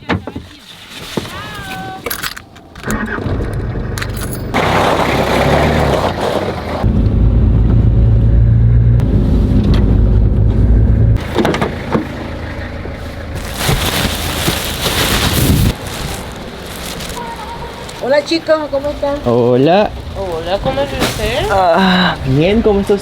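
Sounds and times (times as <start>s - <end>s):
car engine running: 2.8s - 23.0s.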